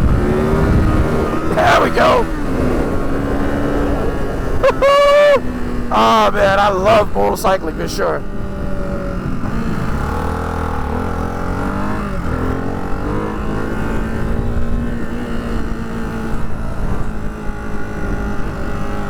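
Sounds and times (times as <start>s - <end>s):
motorcycle engine running: 8.2s - 19.0s.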